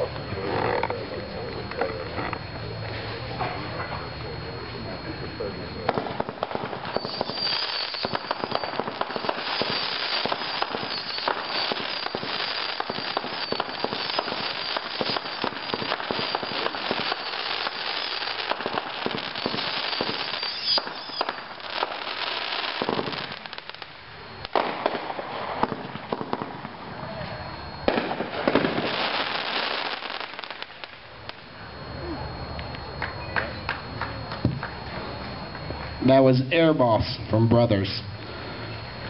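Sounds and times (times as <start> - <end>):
fireworks shots and crackling: 5.8 - 31.5.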